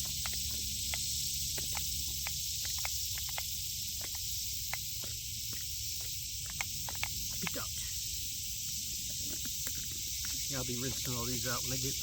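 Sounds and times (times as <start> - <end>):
plastic containers clicking: 0.0 - 7.8
steady high hiss: 0.0 - 12.0.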